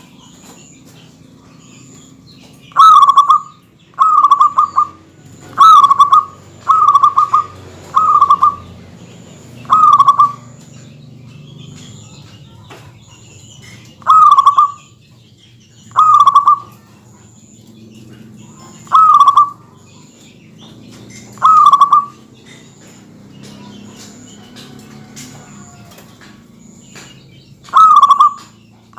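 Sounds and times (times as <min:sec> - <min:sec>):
dove cooing: 0:02.6 - 0:09.0, 0:09.6 - 0:10.9, 0:14.0 - 0:15.0, 0:15.8 - 0:25.9, 0:27.6 - 0:28.9.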